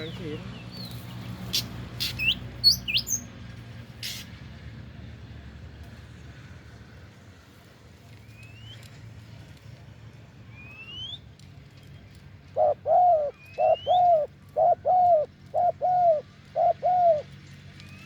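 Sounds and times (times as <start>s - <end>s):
dove cooing: 12.6s - 17.3s.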